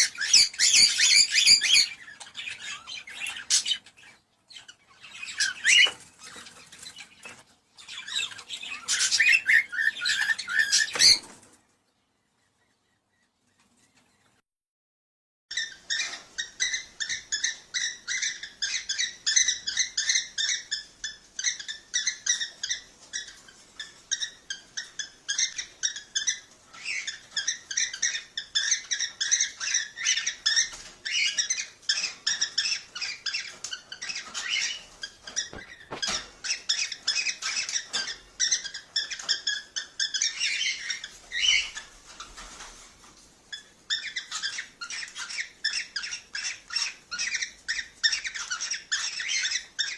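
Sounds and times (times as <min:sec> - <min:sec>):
cockatiels chirping and calling: 0:00.0 - 0:11.6, 0:15.5 - 0:49.9.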